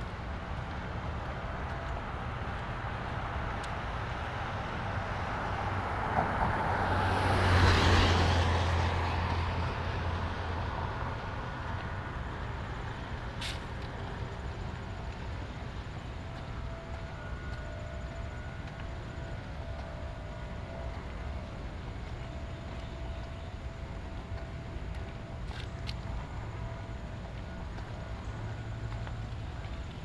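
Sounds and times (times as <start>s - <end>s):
vehicle passing on wet road: 4.2s - 14.1s
light rain pattering: 6.8s - 30.0s.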